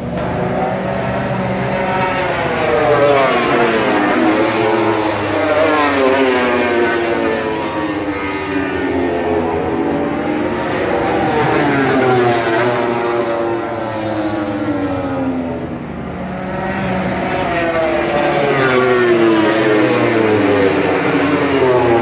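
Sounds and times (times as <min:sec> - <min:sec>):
racing motorcycle engines: 0:00.0 - 0:22.0.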